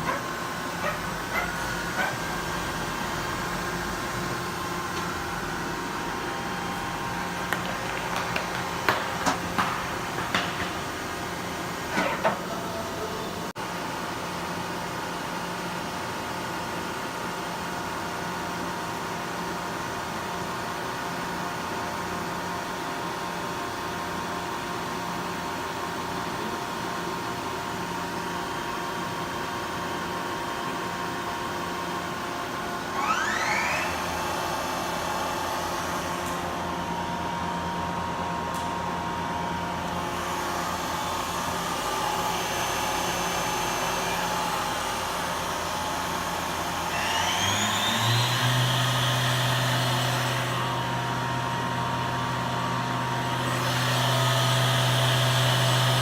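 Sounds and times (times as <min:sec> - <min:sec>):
machining center humming: 0:00.0 - 0:13.6
motor whine rising: 0:32.9 - 0:36.2, 0:46.0 - 0:51.0.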